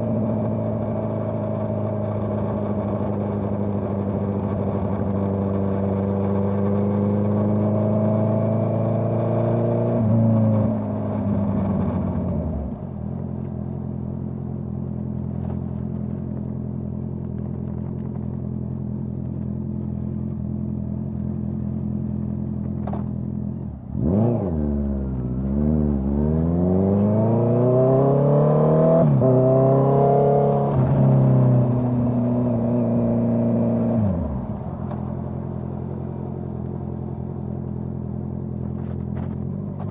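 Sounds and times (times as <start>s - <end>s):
motorcycle engine revving: 22.7s - 39.9s.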